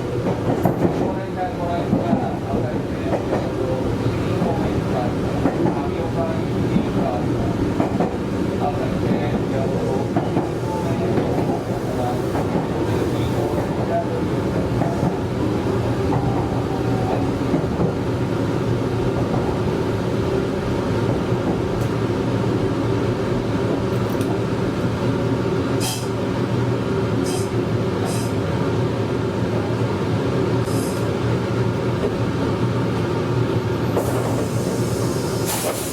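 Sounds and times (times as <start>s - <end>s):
electric train rumbling hum: 0.0s - 35.9s.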